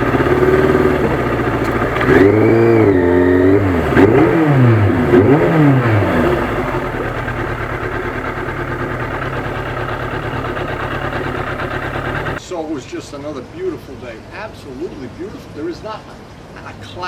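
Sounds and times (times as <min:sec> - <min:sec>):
motorcycle engine revving and idling: 0:00.0 - 0:12.4.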